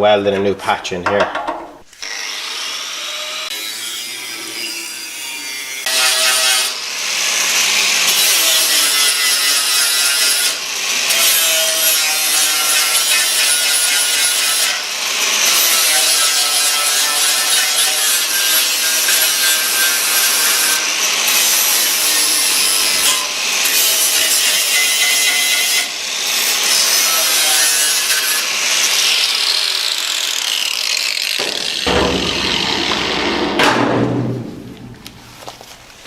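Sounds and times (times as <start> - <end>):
power tool cutting metal: 1.9 - 33.5
low tool noise: 28.3 - 36.0.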